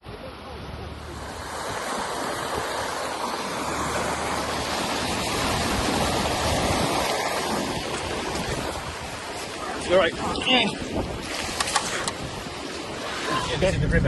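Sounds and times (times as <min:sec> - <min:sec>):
low engine hum: 0:00.0 - 0:07.2
rushing splashing water: 0:00.5 - 0:14.0.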